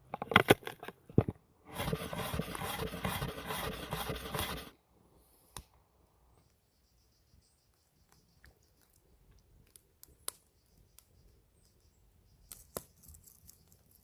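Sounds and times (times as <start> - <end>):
quick rasping scraping: 1.7 - 4.7.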